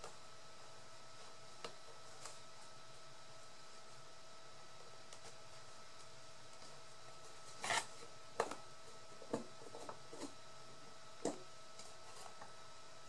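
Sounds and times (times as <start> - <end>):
paper rustling: 6.6 - 8.0.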